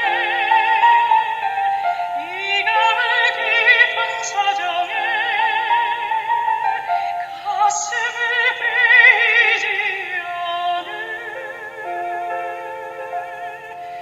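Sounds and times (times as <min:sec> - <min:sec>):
soprano singing with vibrato: 0:00.0 - 0:14.0
sustained instrumental chords: 0:00.0 - 0:14.0.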